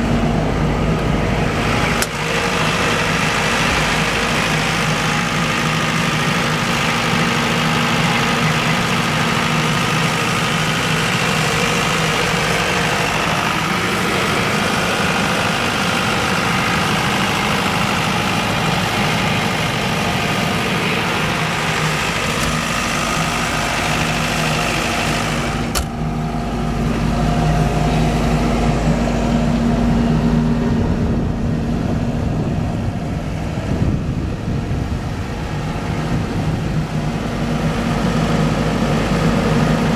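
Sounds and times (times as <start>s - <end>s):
diesel generator running: 0.0s - 39.9s
sharp click: 25.7s - 26.0s.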